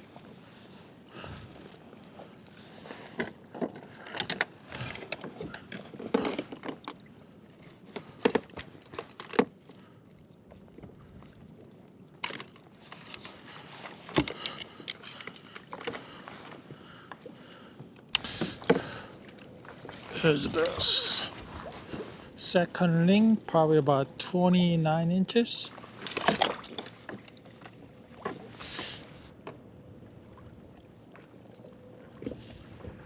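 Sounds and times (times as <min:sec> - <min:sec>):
low steady hiss: 0:22.4 - 0:25.7.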